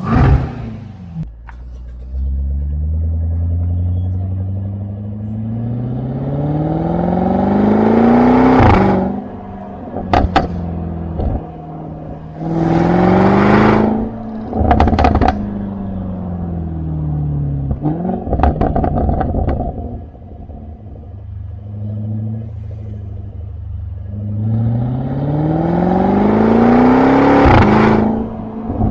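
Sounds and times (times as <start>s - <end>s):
car engine revving: 0.0s - 28.9s
exhaust pops and crackles: 9.6s - 12.0s, 13.8s - 16.2s, 17.6s - 21.0s.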